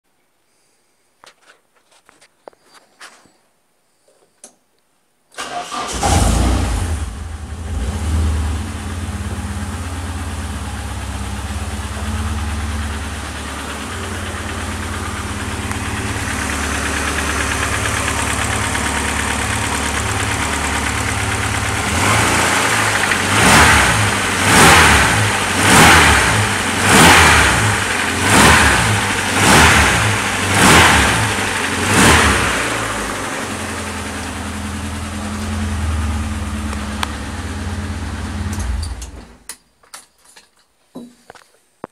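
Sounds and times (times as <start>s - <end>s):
car engine starting and idling: 5.4s - 39.5s
engine revving: 5.5s - 39.0s.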